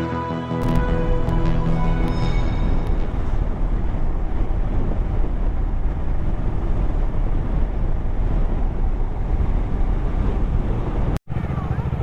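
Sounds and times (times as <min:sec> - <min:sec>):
wind rush on microphone: 0:00.6 - 0:11.2
motorcycle engine: 0:10.2 - 0:12.0.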